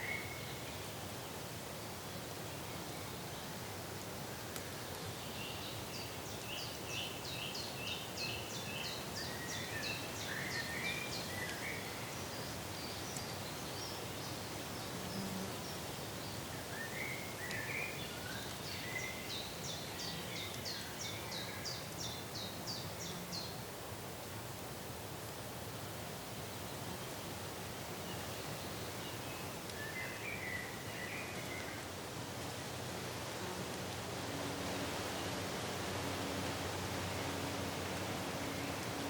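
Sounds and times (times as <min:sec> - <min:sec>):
outdoor hiss: 0:00.0 - 0:39.0
bird singing: 0:05.1 - 0:23.6, 0:28.0 - 0:31.8.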